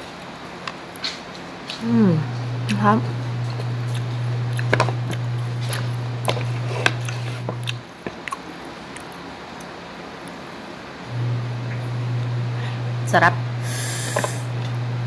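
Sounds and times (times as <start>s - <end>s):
low hum: 1.8s - 7.8s, 11.1s - 15.0s
crunchy bites and chewing: 3.4s - 9.7s.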